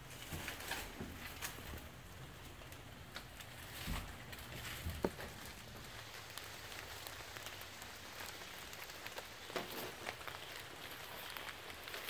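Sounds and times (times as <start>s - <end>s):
light rain pattering on leaves: 0.0s - 12.0s.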